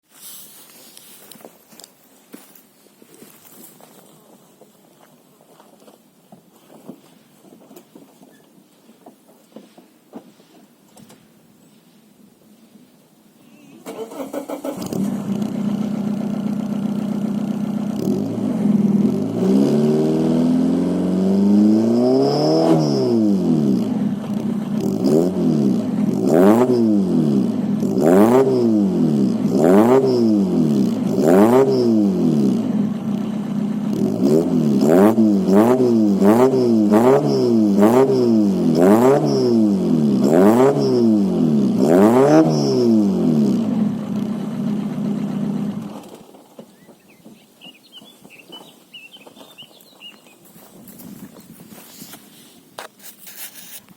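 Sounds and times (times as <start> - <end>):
diesel engine idling and revving: 13.8 - 47.3.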